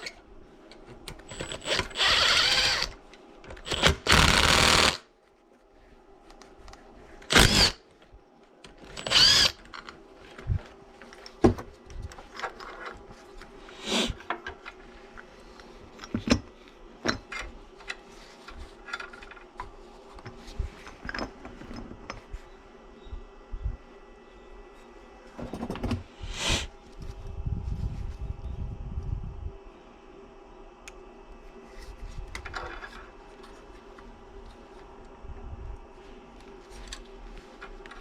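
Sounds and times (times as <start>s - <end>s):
power tool whining: 1.3s - 3.0s, 3.6s - 5.0s, 7.3s - 7.8s, 8.9s - 9.9s.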